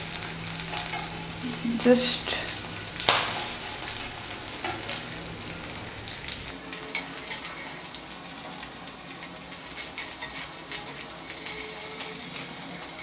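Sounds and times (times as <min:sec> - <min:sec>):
low hum: 0:00.0 - 0:06.6
meat sizzling in a pan: 0:00.0 - 0:13.0.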